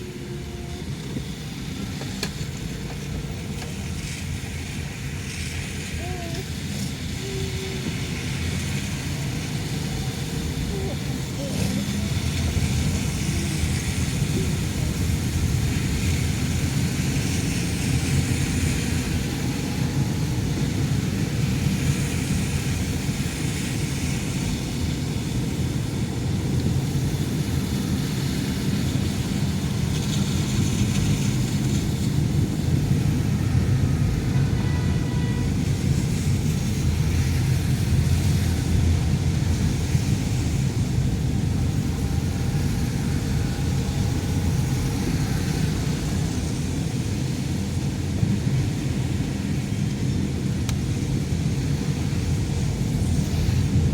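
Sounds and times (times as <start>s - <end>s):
car road and engine noise: 0.0s - 53.9s.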